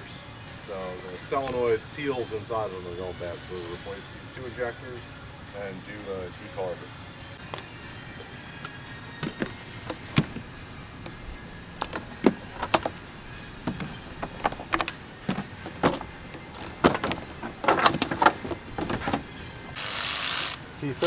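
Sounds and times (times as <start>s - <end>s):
tools clicking and clunking: 7.4s - 20.6s.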